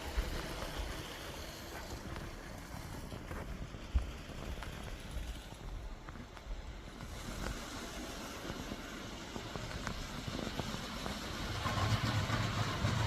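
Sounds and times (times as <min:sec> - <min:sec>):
toy train motor rumble: 0:00.0 - 0:13.0.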